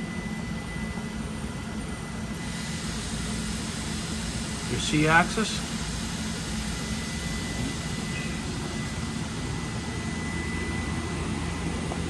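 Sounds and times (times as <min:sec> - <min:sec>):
lathe machine hum with high whine: 0:00.0 - 0:12.0.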